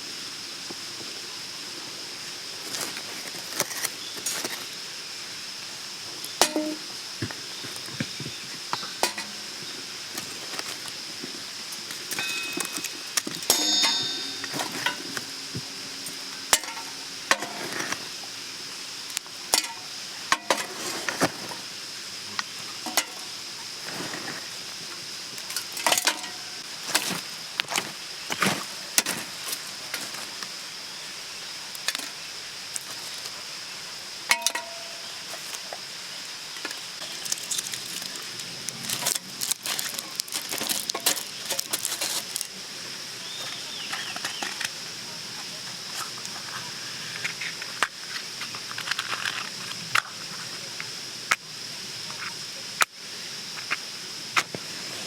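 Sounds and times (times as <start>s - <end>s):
food sizzling in a pan: 0.1s - 45.2s
metal cookware clinks and scrapes: 6.4s - 6.8s, 9.0s - 9.5s, 12.1s - 18.0s, 19.5s - 20.8s, 22.9s - 23.3s, 25.8s - 26.5s, 34.3s - 35.1s.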